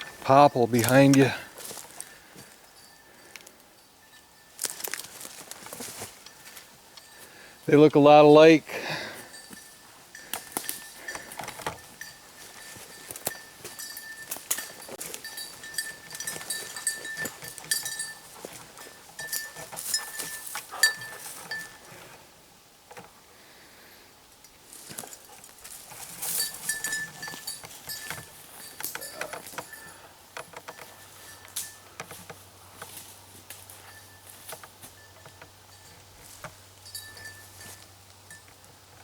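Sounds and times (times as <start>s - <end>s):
small bell jingling: 2.4s - 7.3s, 9.0s - 21.9s, 24.8s - 32.3s, 32.9s - 38.6s
rustling and snapping twigs: 4.6s - 7.2s, 10.2s - 21.9s.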